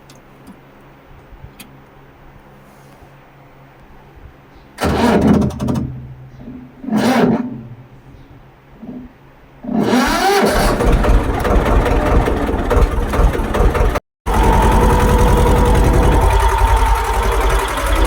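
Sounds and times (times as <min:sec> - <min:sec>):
tractor engine chugging: 0:10.0 - 0:18.0.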